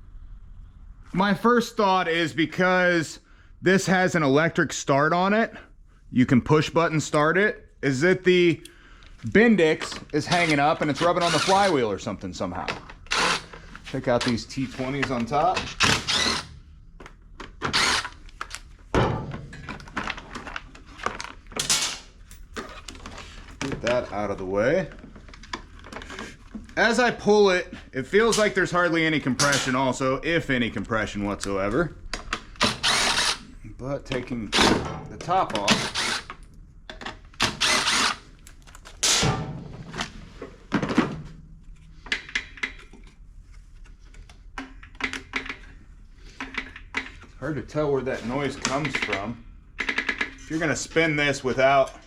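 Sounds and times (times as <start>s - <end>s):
clunks and scrapes of engine parts: 17.4s - 24.0s, 24.9s - 26.8s.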